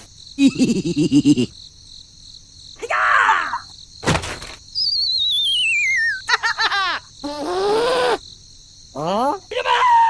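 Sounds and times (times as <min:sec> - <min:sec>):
giggle-like pitched sound: 0:00.4 - 0:01.5, 0:05.7 - 0:07.6
cartoon thump: 0:04.0 - 0:04.6
quick chirps: 0:04.7 - 0:06.3
falling wavy whistle: 0:04.8 - 0:06.3.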